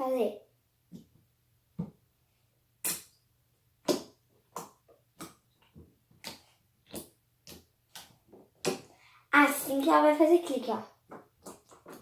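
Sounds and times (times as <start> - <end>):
slime popping wetly: 2.8 - 3.2, 3.8 - 5.5.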